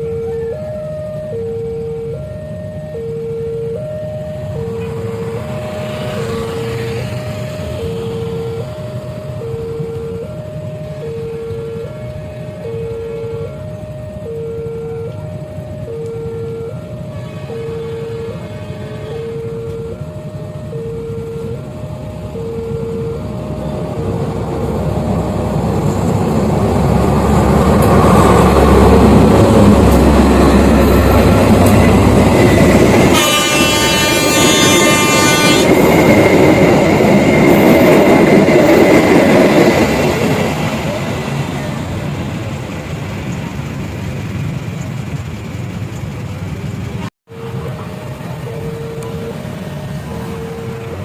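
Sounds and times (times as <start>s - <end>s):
train rumbling: 0.0s - 51.0s
train horn blowing: 16.9s - 20.0s, 28.4s - 36.4s
crossing signal two-tone beeps: 30.4s - 40.1s, 48.4s - 51.0s.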